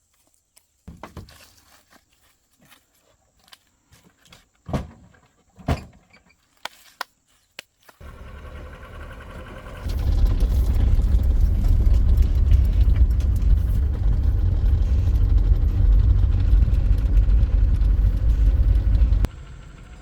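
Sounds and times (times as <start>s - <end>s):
car engine rumbling: 8.0s - 20.0s.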